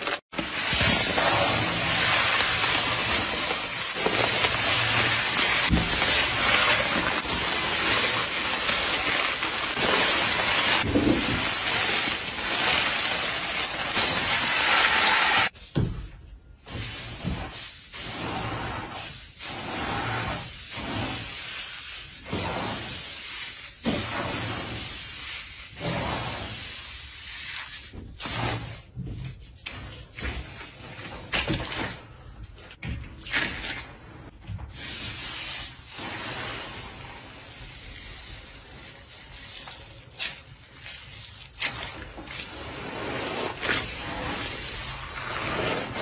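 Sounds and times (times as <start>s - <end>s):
slime crackling and hissing: 1.0s - 15.6s.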